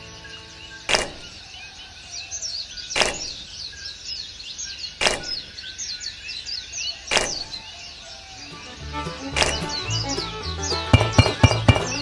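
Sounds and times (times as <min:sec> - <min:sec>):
small birds chirping: 0:00.0 - 0:12.0
sharp knocks: 0:00.9 - 0:01.4, 0:03.0 - 0:03.5, 0:05.0 - 0:05.6, 0:07.1 - 0:07.6, 0:10.8 - 0:12.0.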